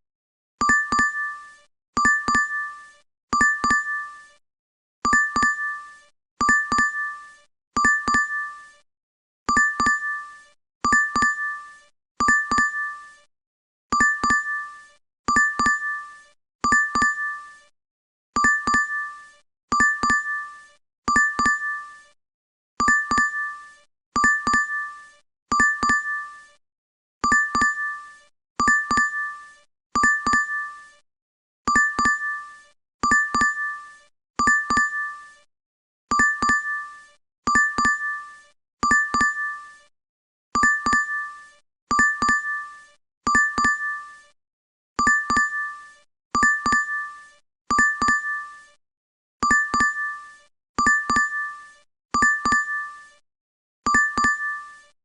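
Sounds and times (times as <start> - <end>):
two-tone notification chime: 2.0 - 2.6, 3.4 - 4.0, 5.1 - 5.7, 6.4 - 7.1, 7.8 - 8.4, 9.5 - 10.2, 10.9 - 11.5, 12.2 - 12.8, 14.0 - 14.6, 15.3 - 16.0, 16.7 - 17.4, 18.4 - 19.0, 21.1 - 21.8, 25.5 - 26.2, 27.2 - 27.9, 28.6 - 29.3, 30.0 - 30.6, 31.7 - 32.4, 34.4 - 35.1, 36.1 - 36.7, 38.8 - 39.5, 41.9 - 42.6, 43.3 - 44.0, 45.0 - 45.7, 46.4 - 47.0, 47.7 - 48.4, 49.4 - 50.1, 50.8 - 51.4, 52.2 - 52.8, 53.9 - 54.8.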